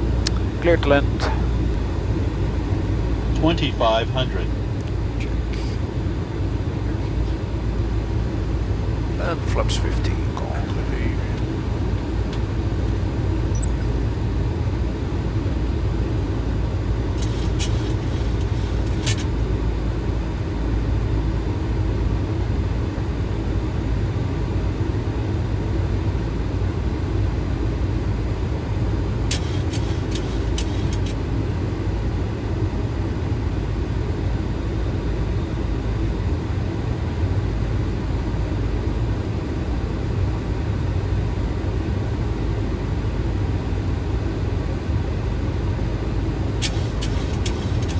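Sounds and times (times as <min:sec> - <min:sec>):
cockpit airflow and engine rush: 0:00.0 - 0:47.9.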